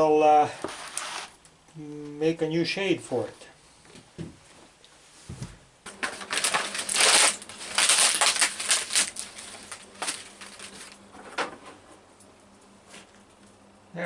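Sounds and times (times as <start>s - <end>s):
plastic cracking and crunching: 5.9s - 11.0s.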